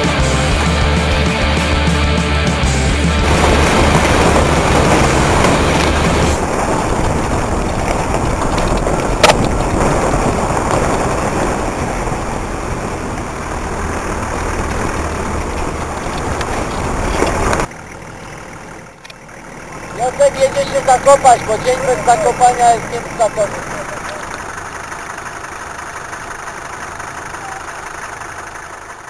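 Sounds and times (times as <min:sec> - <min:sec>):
rock music: 0:00.0 - 0:06.4
off-road vehicle driving over rough ground: 0:00.0 - 0:29.0.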